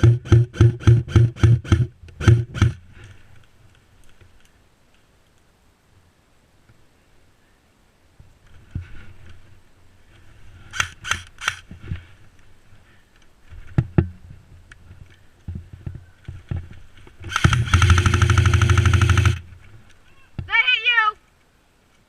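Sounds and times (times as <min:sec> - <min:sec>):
airsoft gun firing: 0:17.3 - 0:19.4.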